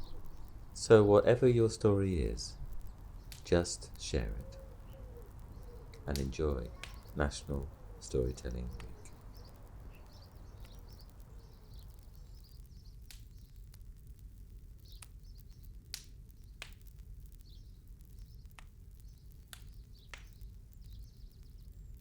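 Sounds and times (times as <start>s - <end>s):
small birds chirping: 0.0s - 14.0s, 14.7s - 22.0s
light clicks: 8.4s - 12.1s.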